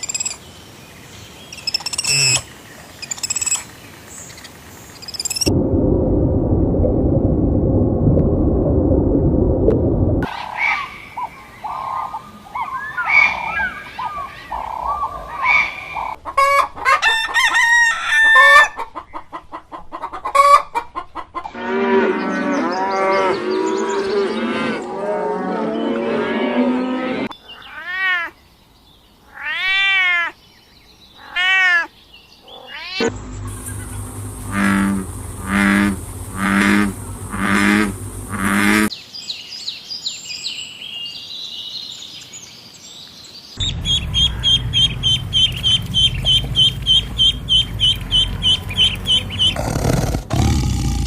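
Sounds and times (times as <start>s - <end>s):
hens clucking: 13.1s - 17.2s, 18.4s - 21.5s, 33.0s - 38.9s, 44.2s - 50.0s
rooster crowing: 16.4s - 18.8s.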